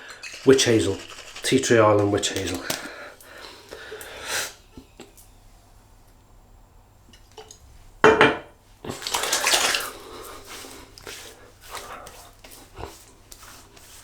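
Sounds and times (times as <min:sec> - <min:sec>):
rustling: 0:00.0 - 0:04.6
wet splashing on face: 0:00.1 - 0:04.7, 0:08.8 - 0:13.8.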